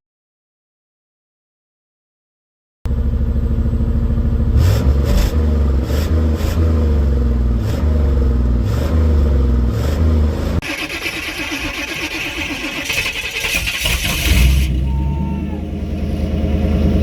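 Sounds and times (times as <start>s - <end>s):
loud engine revving: 4.3s - 17.0s.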